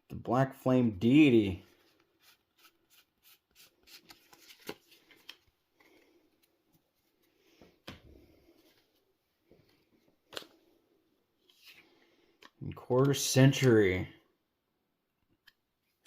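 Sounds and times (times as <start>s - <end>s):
cards scraping and clicking: 1.8s - 5.5s, 11.4s - 13.7s.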